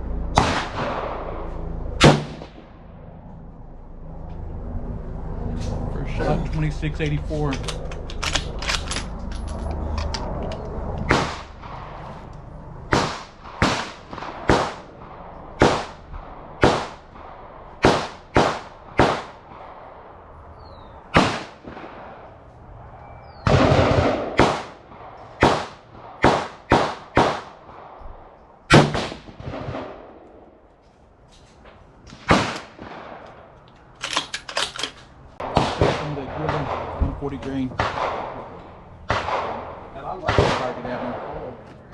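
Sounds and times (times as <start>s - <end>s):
gunshots with short echo: 0.3s - 2.7s, 11.0s - 12.2s, 12.9s - 19.9s, 21.1s - 22.3s, 23.4s - 28.0s, 28.7s - 30.2s, 32.1s - 33.3s, 35.4s - 41.6s.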